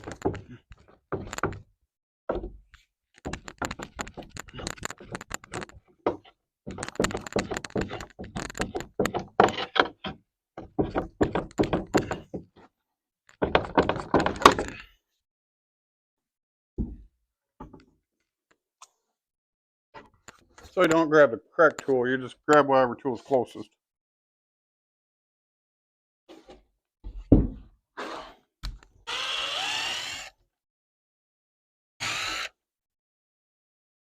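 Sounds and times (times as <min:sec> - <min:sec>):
wood knocking and tapping: 0:00.0 - 0:01.6, 0:02.3 - 0:02.6, 0:03.2 - 0:12.7, 0:13.3 - 0:14.7, 0:16.8 - 0:17.9, 0:27.1 - 0:27.6.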